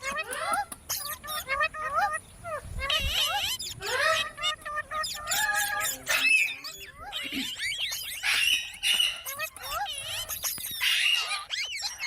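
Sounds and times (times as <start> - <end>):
parrot chirps and whistles: 0.0 - 12.0.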